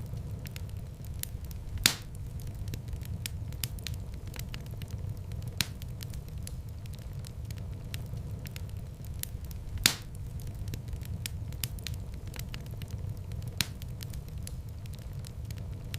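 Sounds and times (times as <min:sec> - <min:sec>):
low rumble of flames: 0:00.0 - 0:15.9
wood fire crackling: 0:00.0 - 0:15.9
loud wood pops: 0:01.8 - 0:02.2, 0:09.8 - 0:10.2.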